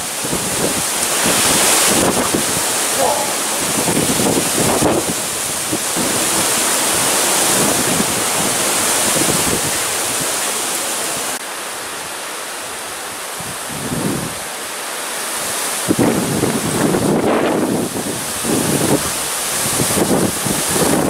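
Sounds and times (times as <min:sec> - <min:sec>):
strong wind rushing: 0:00.0 - 0:10.4
wind buffeting microphone: 0:00.0 - 0:10.4, 0:15.8 - 0:21.0.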